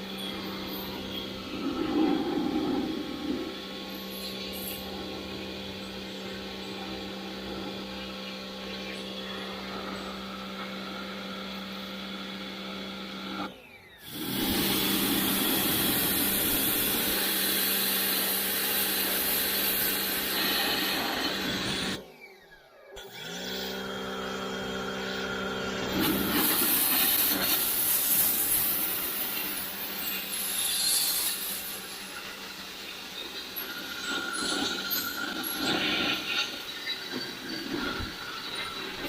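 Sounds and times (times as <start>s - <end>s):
pressure sprayer motor humming: 0.0s - 22.0s, 23.0s - 39.0s
water jetting hiss: 14.1s - 21.6s, 25.9s - 33.0s.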